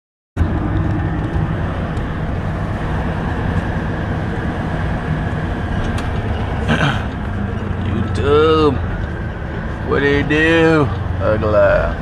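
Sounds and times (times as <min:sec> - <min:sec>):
road noise: 0:00.4 - 0:12.0
truck diesel engine running: 0:00.4 - 0:12.0.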